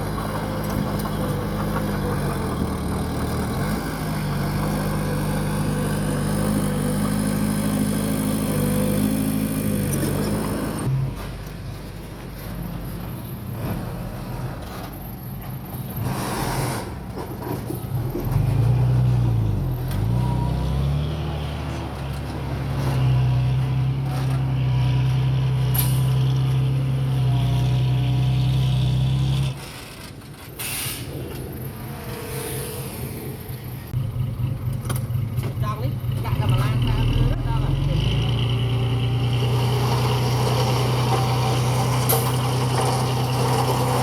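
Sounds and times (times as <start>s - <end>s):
heavy diesel engine under load: 0.0s - 44.0s
brief hisses: 30.6s - 31.2s.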